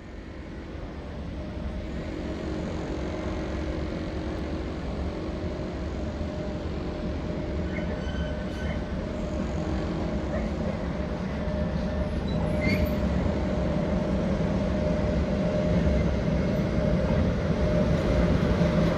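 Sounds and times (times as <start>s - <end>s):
train rumbling on tracks: 0.0s - 18.9s
faint high squeaks: 7.6s - 8.9s.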